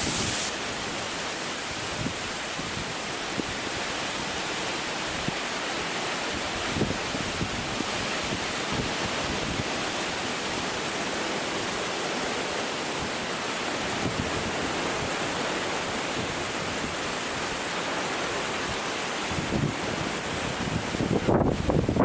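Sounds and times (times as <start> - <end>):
wind rushing through bamboo: 0.0 - 22.0
wind buffeting microphone: 19.3 - 22.0.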